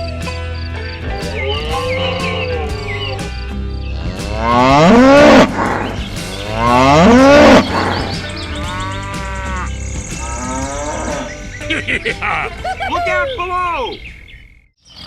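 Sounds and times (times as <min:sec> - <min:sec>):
background music: 0:00.0 - 0:14.1
cow mooing: 0:03.9 - 0:11.3.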